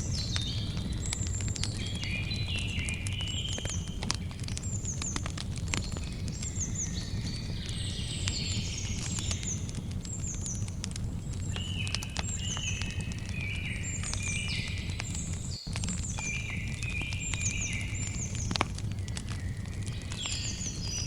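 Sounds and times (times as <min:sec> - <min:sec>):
birds chirping: 0:00.0 - 0:21.0
campfire crackling: 0:00.0 - 0:21.0.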